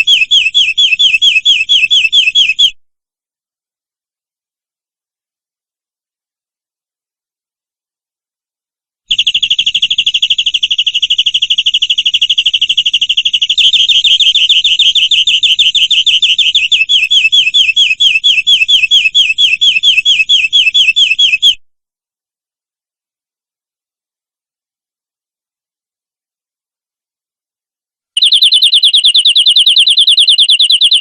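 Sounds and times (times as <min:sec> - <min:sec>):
canary singing trill: 0:00.0 - 0:02.8, 0:09.1 - 0:21.6, 0:28.2 - 0:31.0.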